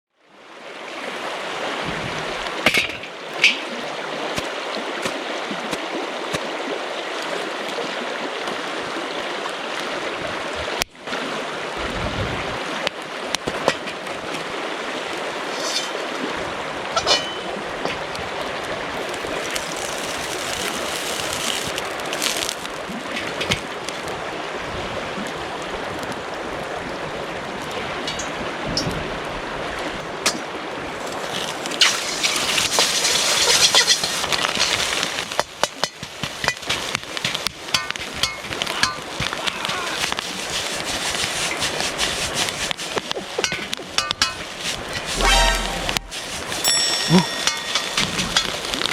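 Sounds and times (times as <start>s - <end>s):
river water flowing: 0.2s - 48.9s.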